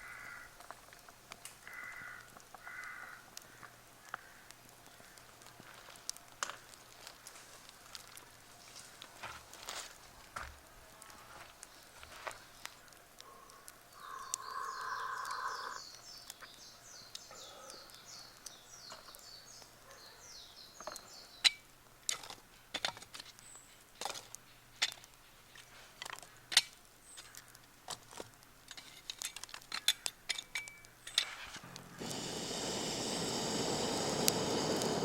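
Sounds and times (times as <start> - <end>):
campfire crackling and popping: 0.0 - 19.8, 20.4 - 35.0
bird chirping: 12.6 - 21.6.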